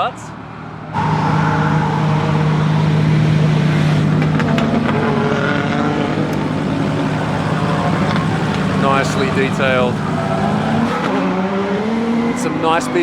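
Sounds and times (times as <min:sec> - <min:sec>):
car engine running steadily: 0:01.0 - 0:11.1
faint clicks: 0:04.0 - 0:10.9.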